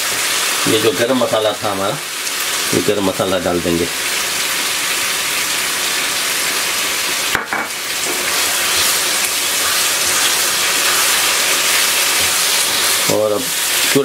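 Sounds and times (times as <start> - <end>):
food sizzling in a wok: 0.0 - 14.0
wooden spatula stirring: 8.1 - 14.0.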